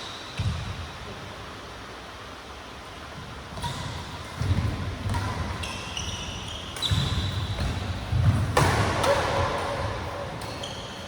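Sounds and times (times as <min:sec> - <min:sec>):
shoes squeaking on floor: 0:05.6 - 0:08.4, 0:10.4 - 0:11.0.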